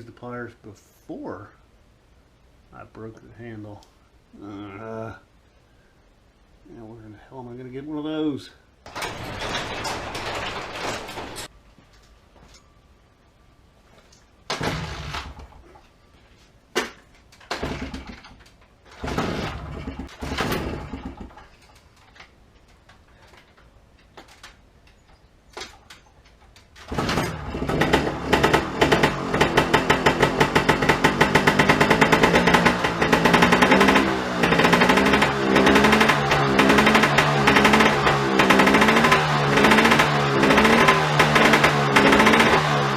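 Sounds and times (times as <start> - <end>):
two-stroke engine starting and popping: 8.9 - 11.5, 14.5 - 15.6, 17.4 - 21.5, 26.8 - 42.9.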